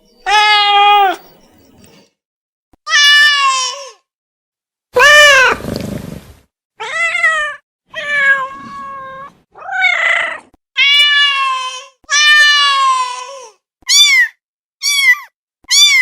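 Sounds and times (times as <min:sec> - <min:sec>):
cat meowing: 0:00.2 - 0:01.2, 0:06.8 - 0:13.3, 0:13.9 - 0:16.0.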